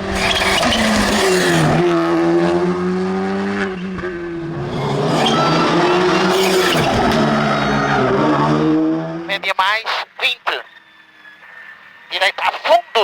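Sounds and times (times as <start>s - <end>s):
rally car engine revving hard: 0.0s - 9.3s.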